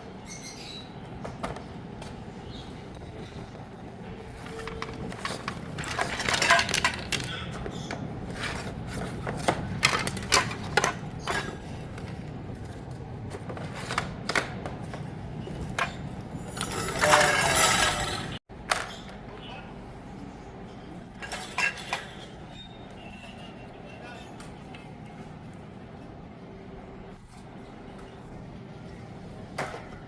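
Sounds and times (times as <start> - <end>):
metal cage parts clinking: 2.0 - 18.4.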